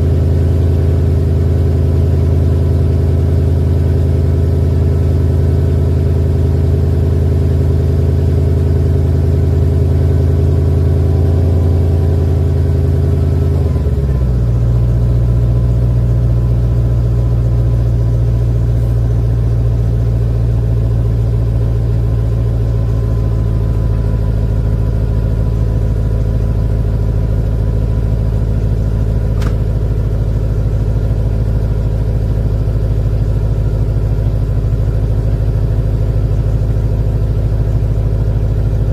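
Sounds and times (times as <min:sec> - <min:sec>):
car engine idling: 0:00.0 - 0:38.9
short click: 0:29.4 - 0:29.6.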